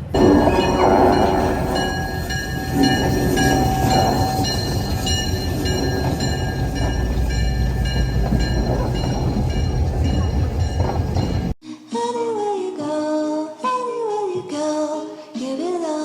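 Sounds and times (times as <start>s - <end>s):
high-pitched wheel squeals: 0.0s - 11.5s
train rumbling and rattling: 0.0s - 11.6s.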